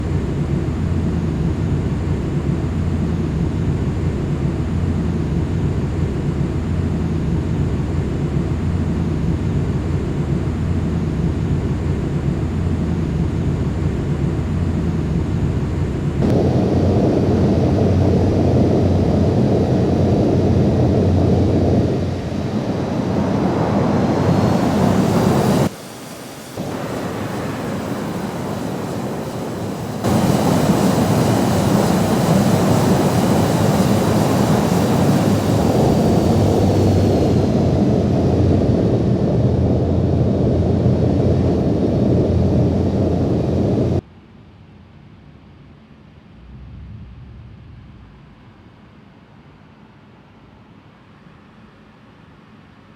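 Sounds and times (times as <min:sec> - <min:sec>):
faint rising whine: 0:00.0 - 0:44.0, 0:46.0 - 0:50.1
jet engines roaring: 0:00.0 - 0:44.0
wind on microphone: 0:46.4 - 0:48.4.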